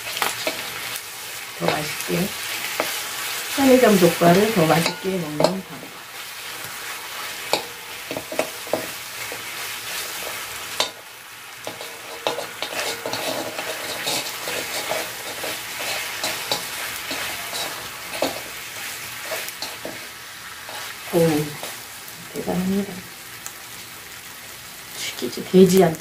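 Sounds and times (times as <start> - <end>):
utensils scraping and clicking on pan: 0.0 - 1.0, 1.6 - 6.0, 6.6 - 21.8
meat sizzling on grill pan: 0.0 - 26.0.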